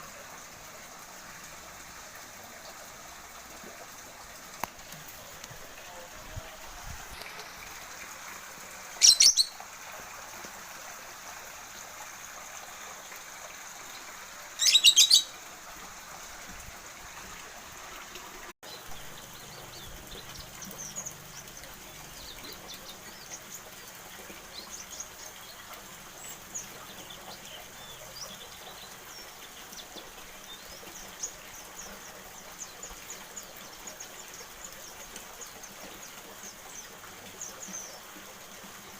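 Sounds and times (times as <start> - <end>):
songbird trilling and chirping: 9.0 - 9.6, 14.6 - 15.3.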